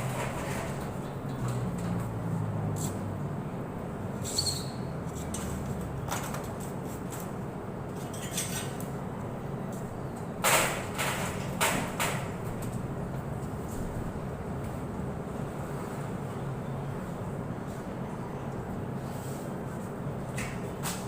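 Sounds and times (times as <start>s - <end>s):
vehicle engine humming: 0.0s - 8.0s, 12.2s - 20.3s
high squeak: 4.2s - 4.9s.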